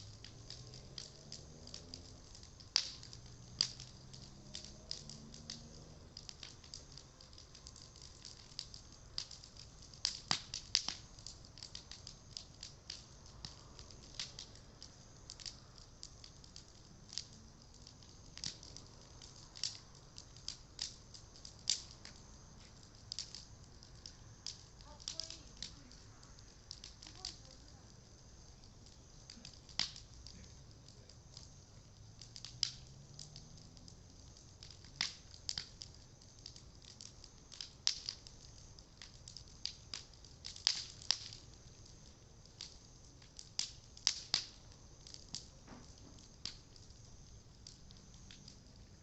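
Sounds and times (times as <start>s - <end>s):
bonfire crackling and popping: 0.0s - 49.0s.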